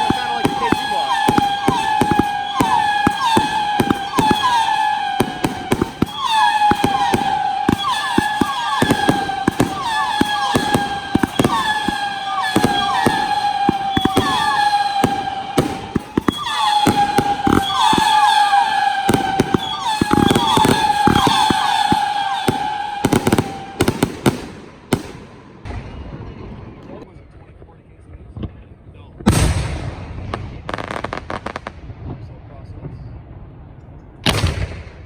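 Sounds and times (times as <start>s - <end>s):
fireworks whistling: 0.0s - 25.8s
fireworks bangs and crackles: 0.0s - 27.0s, 28.2s - 35.0s.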